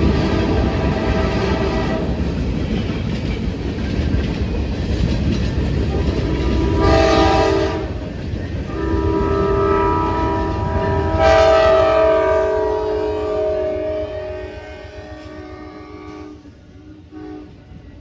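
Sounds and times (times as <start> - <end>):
locomotive horn: 0.0 - 2.2, 5.9 - 17.9
moving train rumble: 0.0 - 18.0.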